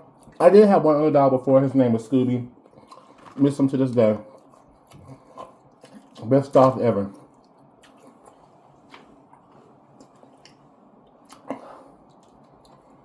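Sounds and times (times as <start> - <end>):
person chewing: 2.6 - 3.4, 4.2 - 6.3, 7.1 - 13.0
wet mouth clicks and smacks: 10.0 - 12.8.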